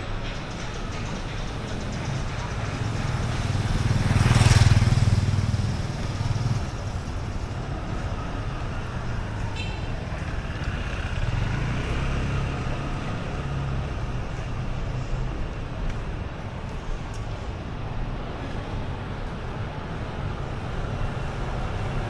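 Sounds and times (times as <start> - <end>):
low rumble of engines: 0.0 - 22.0
vehicle passing close by: 1.8 - 7.4, 10.2 - 14.4.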